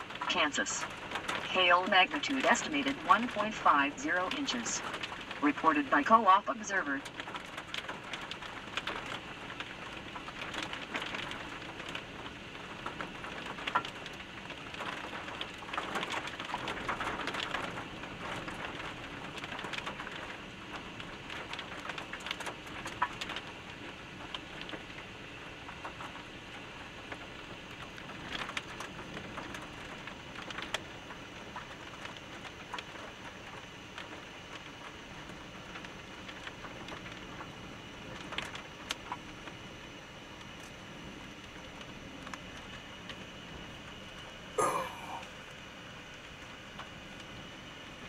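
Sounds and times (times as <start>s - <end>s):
raindrops ticking on a surface: 0.0s - 48.0s
rain hissing: 44.6s - 46.5s.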